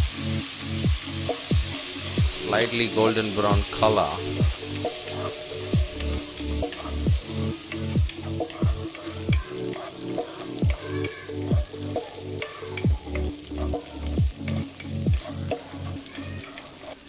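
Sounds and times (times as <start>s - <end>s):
background music with deep bass: 0.0s - 17.0s
shallots sizzling in hot oil: 0.0s - 17.0s
wooden spatula stirring: 3.9s - 11.7s, 12.3s - 17.0s.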